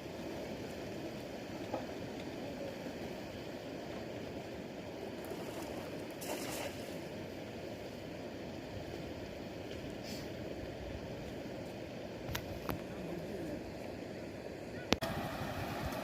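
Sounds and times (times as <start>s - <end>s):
floodwater rushing over road: 0.0s - 16.0s
sharp water splash: 5.2s - 7.1s.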